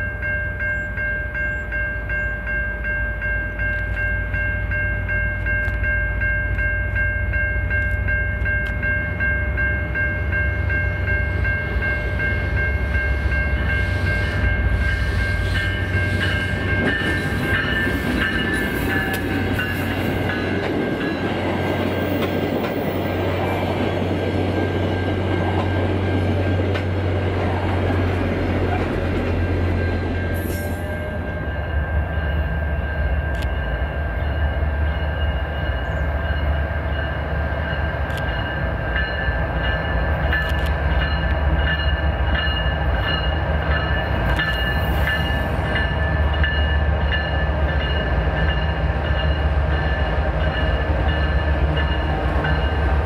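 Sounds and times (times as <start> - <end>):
diesel locomotive engine drone: 0.0 - 53.0
wheel and rail noise: 0.0 - 53.0.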